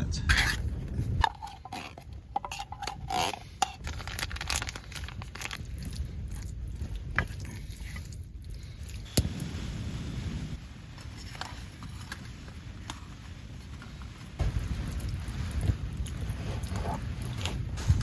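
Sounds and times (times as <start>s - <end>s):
spoon scraping metal pot: 0.3s - 3.8s
steady hiss: 9.0s - 18.0s.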